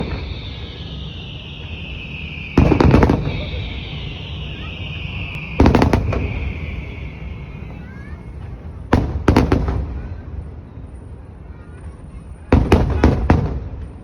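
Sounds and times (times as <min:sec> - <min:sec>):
background hiss: 0:00.0 - 0:08.9
fireworks bursting: 0:00.0 - 0:10.0.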